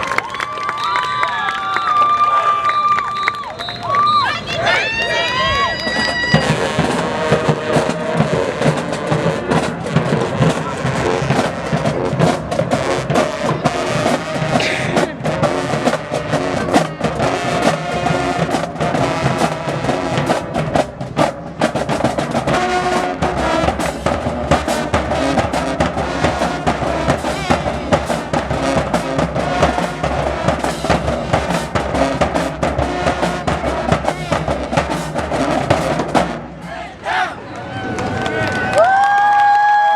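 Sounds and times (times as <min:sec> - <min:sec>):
drumline beating: 0:00.0 - 0:38.2
marching band playing: 0:03.1 - 0:37.5.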